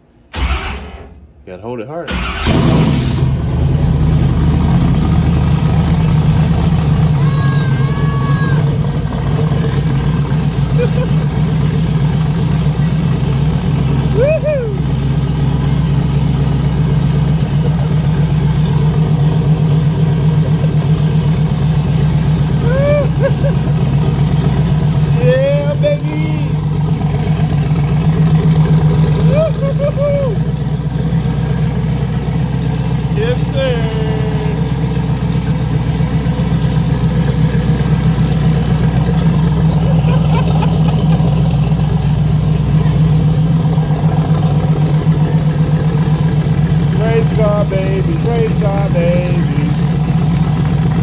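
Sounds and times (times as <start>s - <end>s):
car engine running: 2.1s - 51.0s
person whooping: 7.1s - 8.8s, 14.1s - 14.9s, 22.6s - 23.6s, 25.1s - 26.6s, 29.2s - 30.5s.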